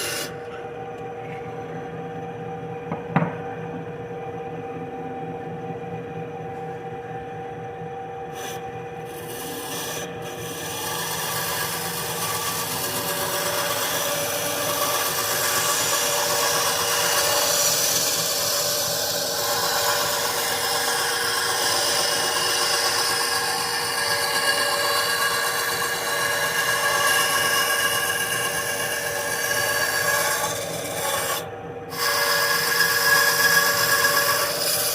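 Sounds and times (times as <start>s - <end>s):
bandsaw cutting wood: 0.0s - 0.4s, 8.4s - 34.9s
saw motor humming: 0.0s - 0.6s, 8.4s - 34.9s.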